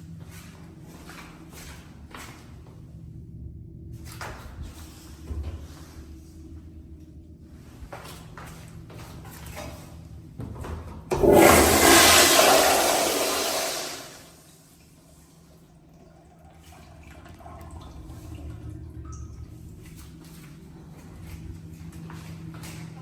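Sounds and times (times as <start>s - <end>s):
toilet flushing: 11.1s - 19.9s.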